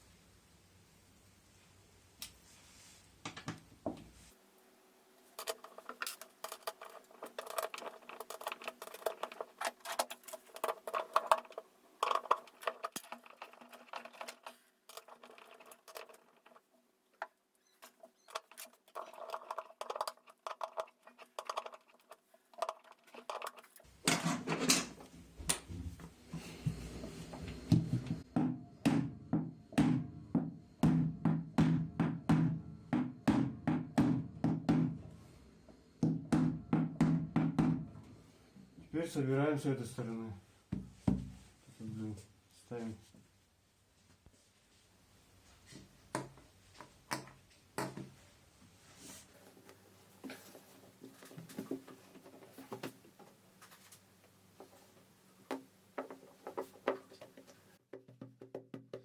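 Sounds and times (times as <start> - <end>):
metal and plastic parts clicking: 5.4 - 16.6.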